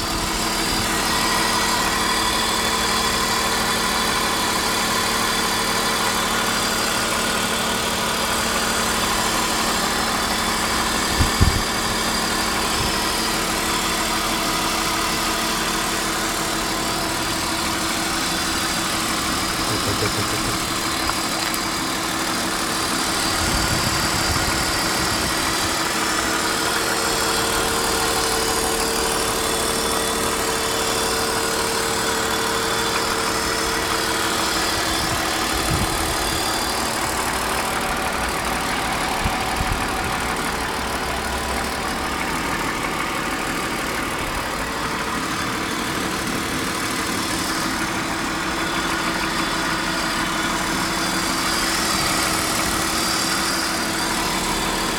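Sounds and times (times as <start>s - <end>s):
car engine idling: 0.0s - 54.9s
engine knocking: 0.0s - 54.9s.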